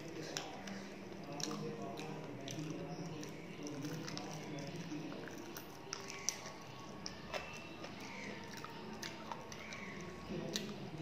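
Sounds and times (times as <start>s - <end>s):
mouth chewing food: 0.0s - 11.0s.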